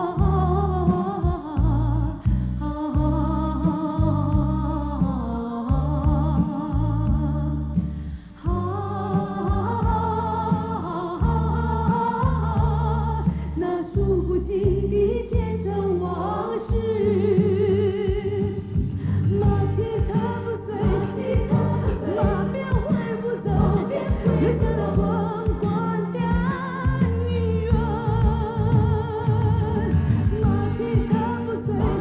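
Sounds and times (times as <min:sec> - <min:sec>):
held bass notes: 0:00.0 - 0:32.0
singer with vibrato: 0:08.4 - 0:32.0.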